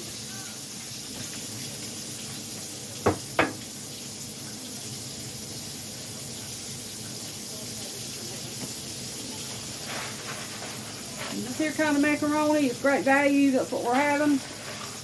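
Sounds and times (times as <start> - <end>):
meat sizzling in grease: 0.0 - 15.0
sharp knocks: 3.1 - 3.6.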